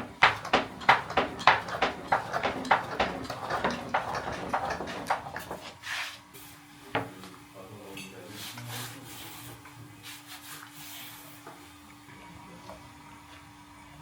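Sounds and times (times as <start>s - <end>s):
wooden knocks and clatter: 0.0s - 5.8s.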